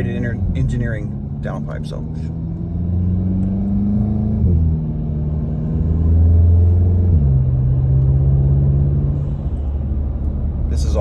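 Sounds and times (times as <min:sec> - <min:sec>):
car engine accelerating through gears: 0:00.0 - 0:11.0.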